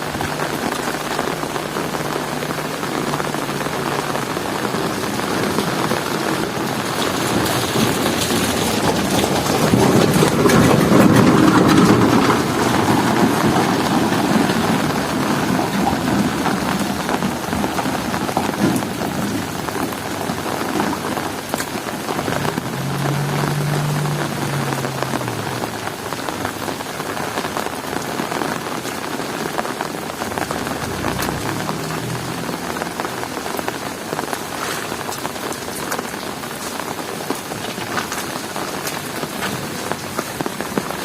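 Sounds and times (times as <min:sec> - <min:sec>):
heavy rain falling: 0:00.0 - 0:41.0
low rumble of thunder: 0:04.7 - 0:21.4.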